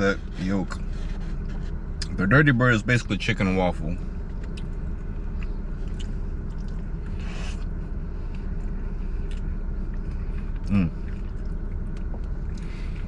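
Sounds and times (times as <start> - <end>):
steady low rumble: 0.0 - 13.0
person chewing food: 4.3 - 13.0.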